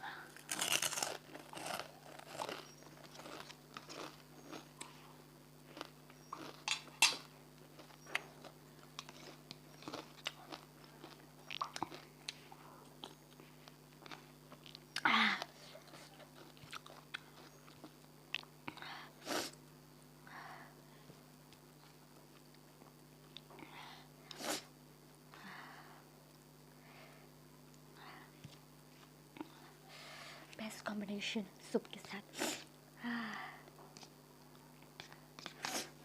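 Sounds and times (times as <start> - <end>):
crunchy chewing and bites: 0.3 - 15.0, 15.6 - 18.8.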